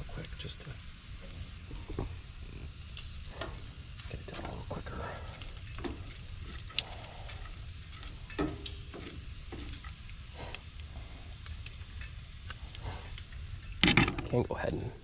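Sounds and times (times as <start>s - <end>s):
food sizzling in pans: 0.0s - 15.0s
sharp pops and clinks: 5.3s - 15.0s.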